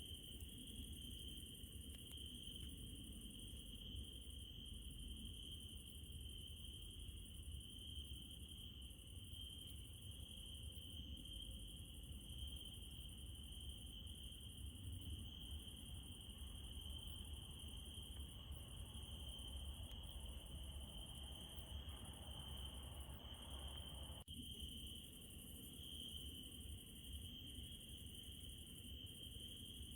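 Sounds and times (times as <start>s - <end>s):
crickets trilling: 0.0s - 29.9s
high thin insect chorus: 0.0s - 29.9s.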